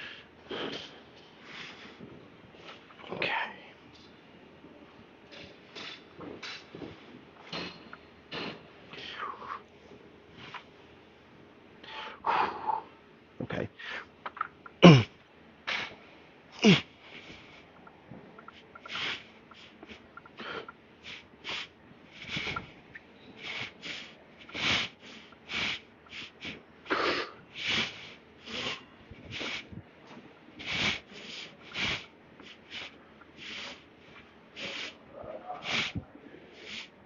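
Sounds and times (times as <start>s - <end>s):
man grunting: 14.8s - 15.1s, 16.6s - 16.9s.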